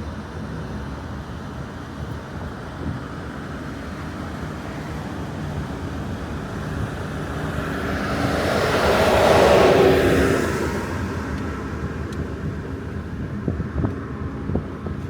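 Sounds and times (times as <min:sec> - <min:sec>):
wind on microphone: 0:01.6 - 0:15.0
vehicle passing: 0:06.1 - 0:12.1.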